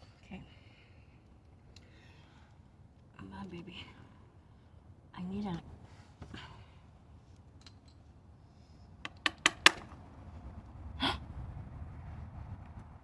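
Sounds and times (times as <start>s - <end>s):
sharp clicks of tools: 9.0s - 10.0s.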